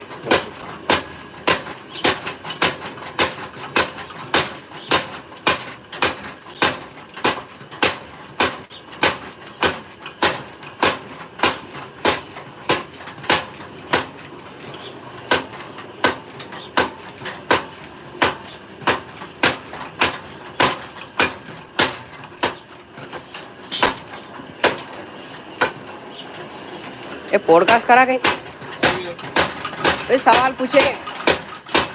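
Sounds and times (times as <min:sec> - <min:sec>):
hammer striking metal: 0:16.8 - 0:24.9, 0:27.6 - 0:31.9.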